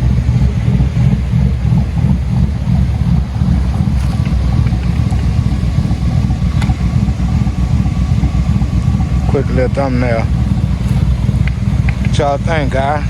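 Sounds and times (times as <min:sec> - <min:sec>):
engine idling: 0:00.0 - 0:13.0
wind buffeting microphone: 0:00.0 - 0:13.0.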